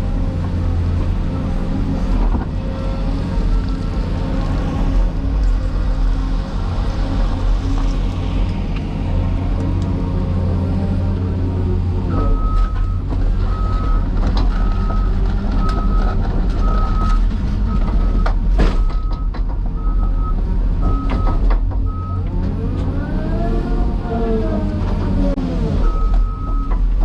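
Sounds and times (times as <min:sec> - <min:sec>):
heavy diesel machinery rumbling: 0:00.0 - 0:27.0
engine revving: 0:21.9 - 0:26.1.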